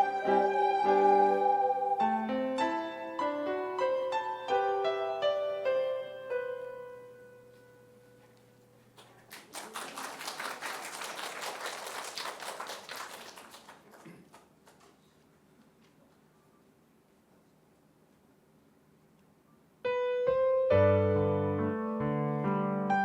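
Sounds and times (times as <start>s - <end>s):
ocarina ensemble with keyboard: 0.0s - 8.0s
audience applauding: 9.0s - 15.1s.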